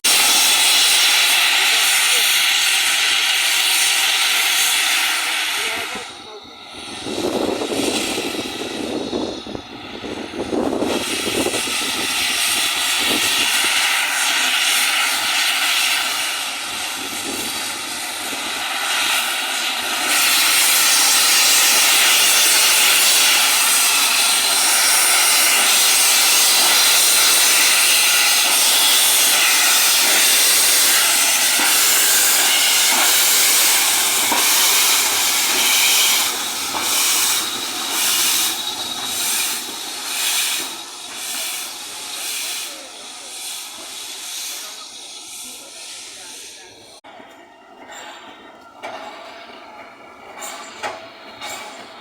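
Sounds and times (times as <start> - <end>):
steam locomotive hissing: 0.0 - 52.0.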